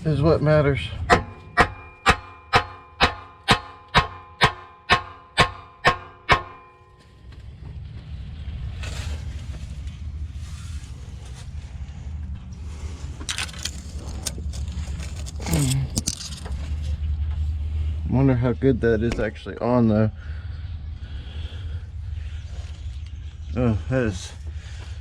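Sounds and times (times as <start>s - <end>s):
steady low rumble: 0.0s - 25.0s
hammer ringing on steel pipe: 1.1s - 7.2s
scrapes and clatters: 7.0s - 18.0s.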